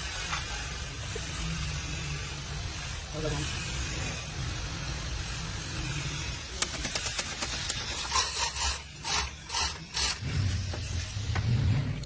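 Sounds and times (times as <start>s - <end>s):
hissing scraping strokes: 0.0s - 11.2s
quick clicks: 6.6s - 8.2s.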